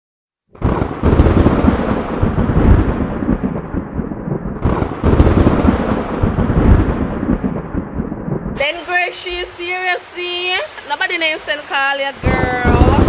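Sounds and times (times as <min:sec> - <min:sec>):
storm deep rumbling: 0:00.6 - 0:09.7, 0:12.2 - 0:13.0.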